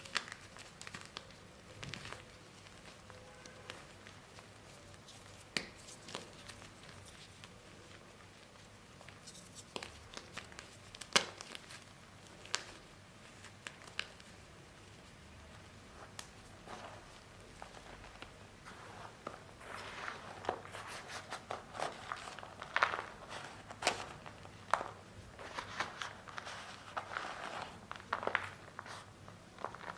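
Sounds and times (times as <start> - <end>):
paste crushed crackling: 19.2 - 28.9.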